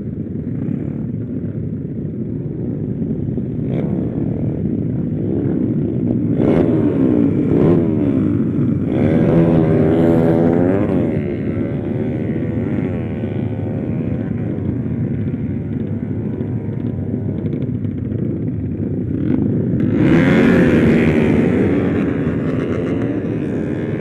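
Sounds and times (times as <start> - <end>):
small motorcycle engine running: 0.0 - 24.0
wind rush on microphone: 0.0 - 24.0.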